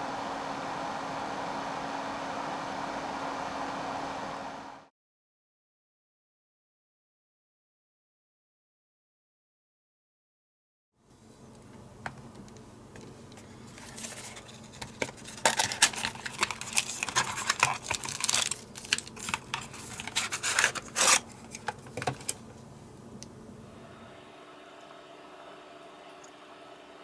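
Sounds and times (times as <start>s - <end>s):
low electrical hum: 0.0s - 4.9s, 11.0s - 27.0s
small tools scraping and clicking: 13.3s - 22.4s.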